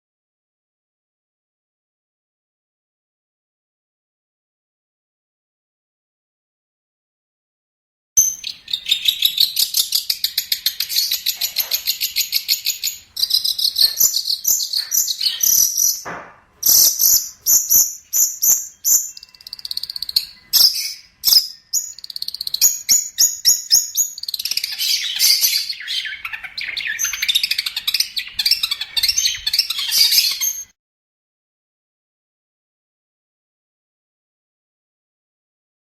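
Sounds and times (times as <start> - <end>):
bird singing chattering song: 8.2 - 30.7.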